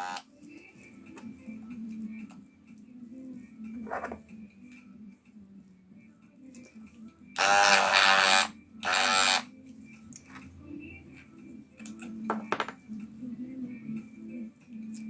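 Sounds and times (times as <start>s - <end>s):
electric hair clipper buzzing: 0.0s - 0.2s, 7.4s - 9.5s.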